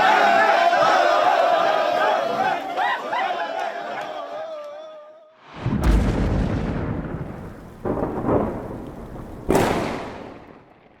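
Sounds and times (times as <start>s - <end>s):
deep booms with long rumble: 5.6s - 10.6s.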